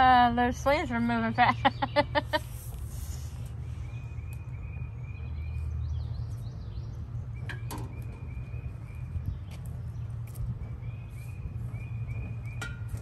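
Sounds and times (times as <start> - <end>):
steady low rumble: 0.0 - 13.0
bird chirping: 3.5 - 13.0.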